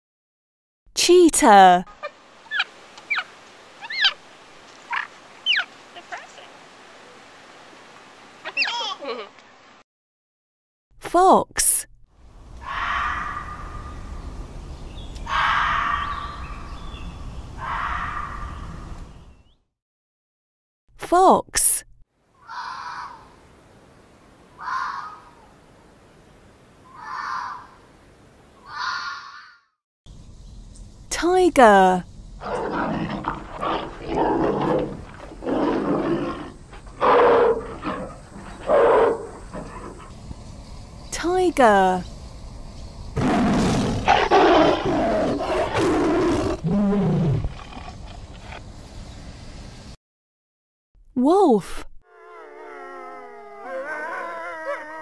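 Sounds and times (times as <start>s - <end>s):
fox giving hoarse calls: 32.4s - 40.1s
tiger growling: 32.4s - 40.2s, 43.2s - 48.6s.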